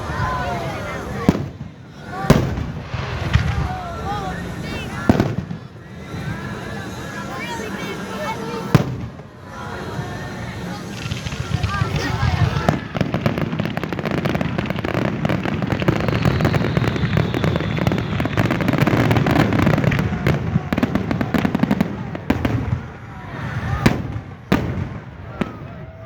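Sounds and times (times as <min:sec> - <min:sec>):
fireworks bangs and crackling: 0:00.0 - 0:26.0
faint falling whistle: 0:15.5 - 0:21.6.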